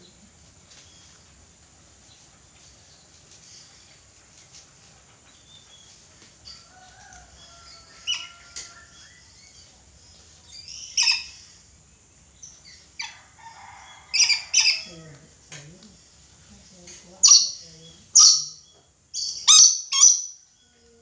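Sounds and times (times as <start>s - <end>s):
parrot shrieking calls: 10.8s - 11.4s, 14.1s - 14.9s, 19.2s - 20.4s.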